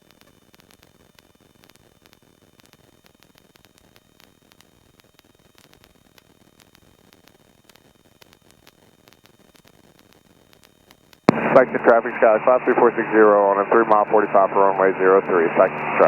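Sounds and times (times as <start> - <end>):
radio static hiss and crackle: 11.3 - 16.0.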